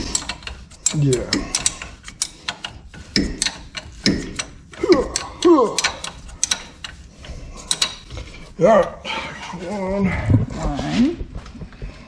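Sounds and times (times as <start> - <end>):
ratchet wrench clicking: 0.0 - 7.0, 7.6 - 8.1.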